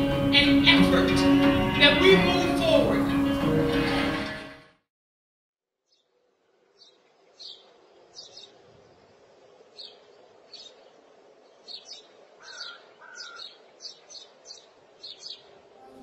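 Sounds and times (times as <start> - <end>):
birds chirping: 5.9 - 16.0.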